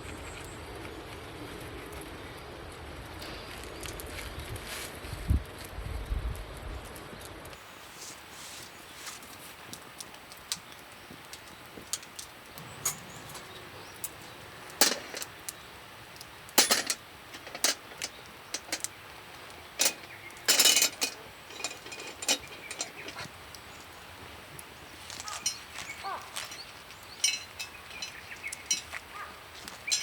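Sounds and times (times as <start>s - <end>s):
camp cooking gear clinking: 7.6s - 30.0s.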